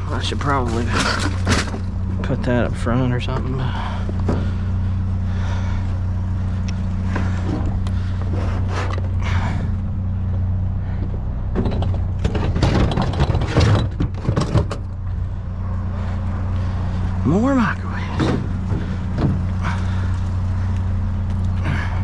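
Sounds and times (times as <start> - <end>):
truck engine humming: 0.0 - 22.0
clattering and clunking: 0.4 - 2.1, 3.3 - 4.8, 7.0 - 15.2, 18.0 - 20.2.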